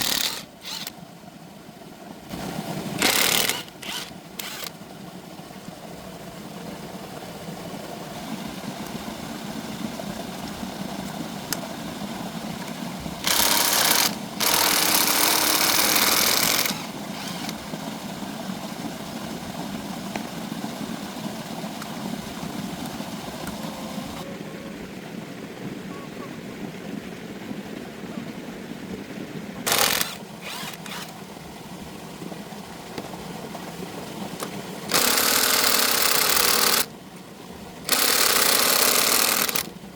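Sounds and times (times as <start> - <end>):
small engine running: 0.0 - 1.0, 2.3 - 4.8, 12.6 - 24.2, 29.7 - 31.2, 34.4 - 36.9, 37.9 - 39.7
loud hissing bursts: 13.2 - 17.6, 34.9 - 36.9, 37.9 - 39.7.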